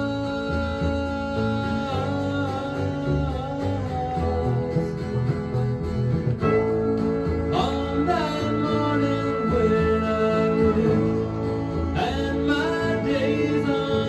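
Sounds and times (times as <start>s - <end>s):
acoustic guitar: 0.0s - 14.0s
country gospel band music: 0.0s - 14.0s
person singing: 0.0s - 14.0s.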